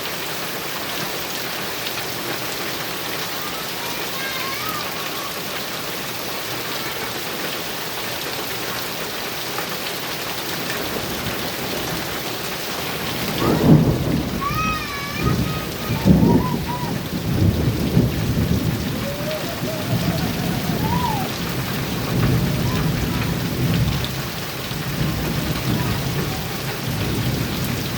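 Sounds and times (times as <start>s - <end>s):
heavy rain on a metal roof: 0.0s - 27.9s
thunder rumbling: 10.7s - 27.9s.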